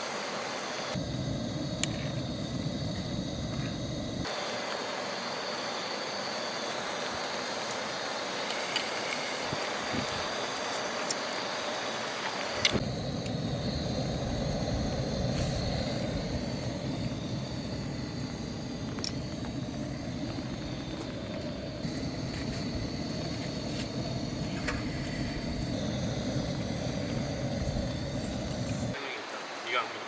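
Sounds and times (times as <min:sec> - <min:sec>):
stream rushing: 0:28.9 - 0:30.0.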